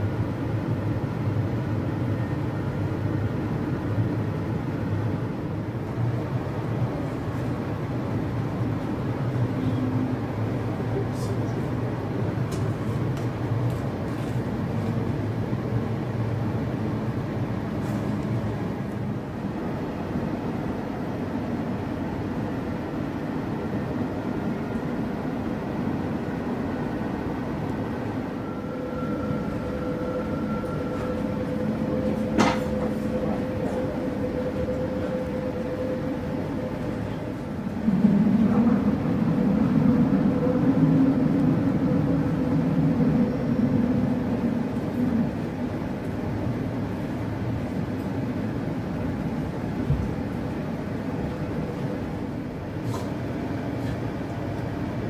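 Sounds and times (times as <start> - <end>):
train rumble: 0.0 - 55.0
humming tone: 27.3 - 49.6.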